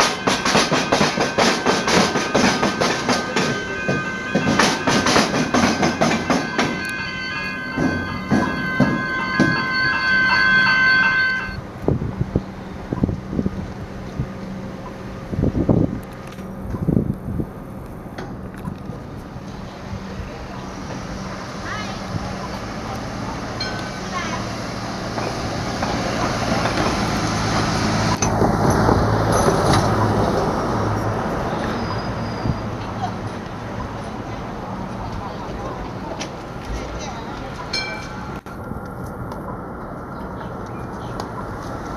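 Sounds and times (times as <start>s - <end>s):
train wheels clattering over crossing: 0.0s - 11.6s, 20.7s - 34.2s
high whine: 0.0s - 11.7s.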